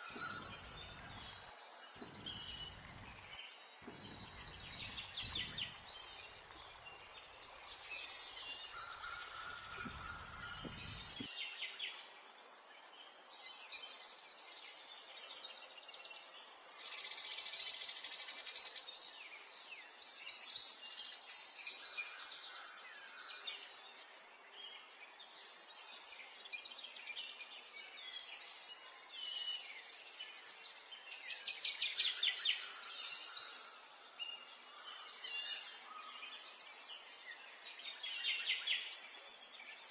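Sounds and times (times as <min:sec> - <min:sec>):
birds chirping: 0:00.0 - 0:11.3.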